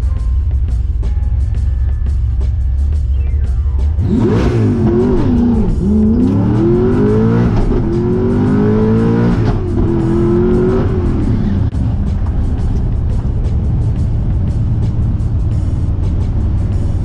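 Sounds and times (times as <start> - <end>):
car engine accelerating hard: 3.5 - 17.0.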